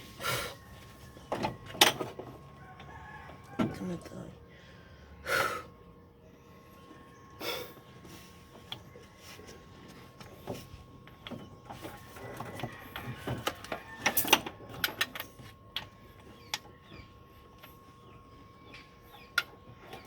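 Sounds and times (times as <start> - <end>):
faint steady hum: 0.0 - 20.0
hand tools clicking and knocking: 10.4 - 16.7.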